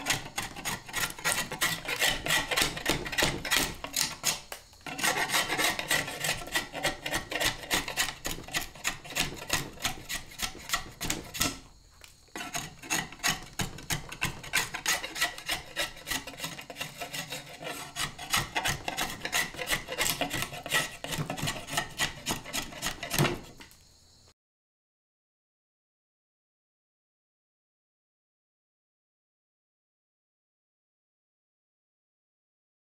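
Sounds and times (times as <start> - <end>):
draw knife scraping wood: 0.0 - 11.7, 12.3 - 23.8.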